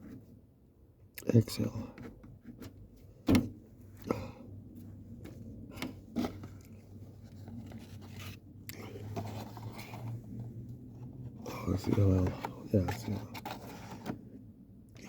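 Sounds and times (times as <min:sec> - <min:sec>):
handling knocks and scrapes: 0:04.8 - 0:14.4.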